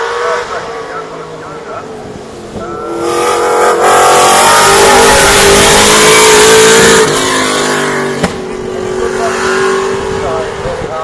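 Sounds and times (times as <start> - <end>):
rally car engine revving past: 2.5 - 11.0.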